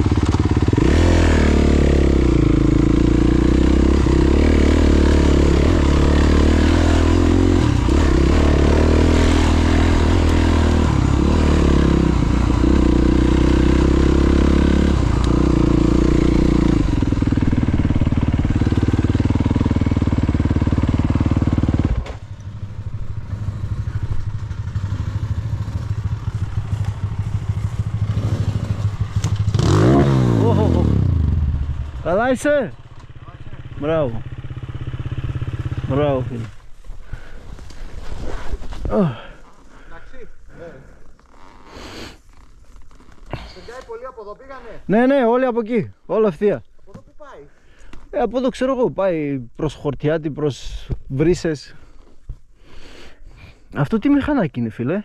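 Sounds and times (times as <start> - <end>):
motorcycle engine revving: 0.0 - 37.4.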